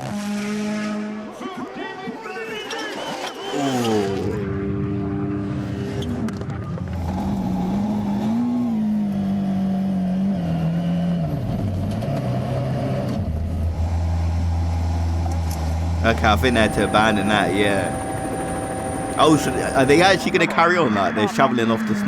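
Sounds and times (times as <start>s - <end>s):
rally car engine running: 4.4s - 22.0s
low steady drone: 15.9s - 21.3s.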